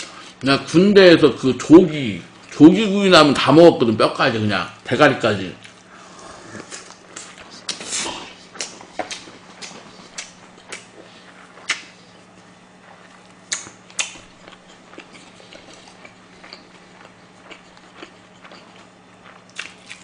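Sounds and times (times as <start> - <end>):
close chewing with lip smacks: 6.6 - 20.0.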